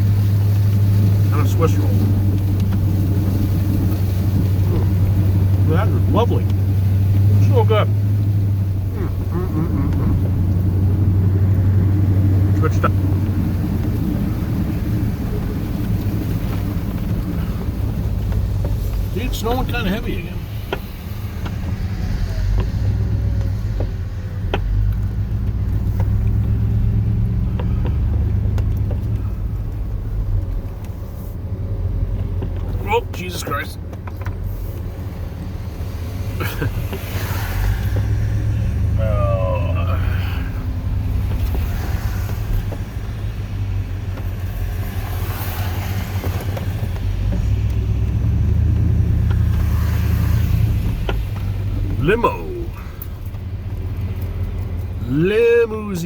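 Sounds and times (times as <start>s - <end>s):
truck engine low rumble: 0.0s - 56.0s.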